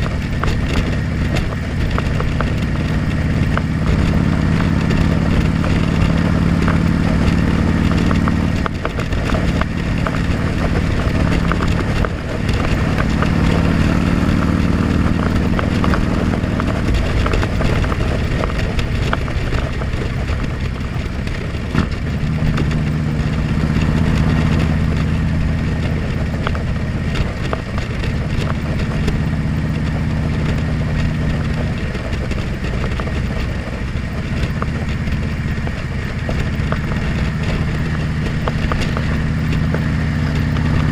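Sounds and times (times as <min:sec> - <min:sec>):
motorcycle engine running: 0:00.0 - 0:40.9
wind noise: 0:00.0 - 0:40.9.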